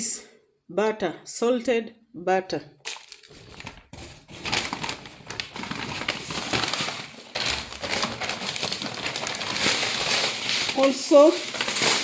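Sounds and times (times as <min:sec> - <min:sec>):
packaging crinkling and rustling: 0:02.9 - 0:12.0.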